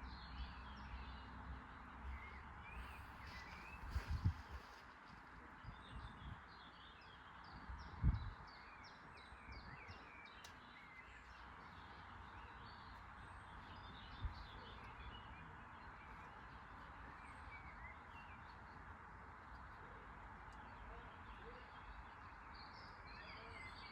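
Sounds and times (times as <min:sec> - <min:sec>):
birds chirping: 0:05.6 - 0:23.9.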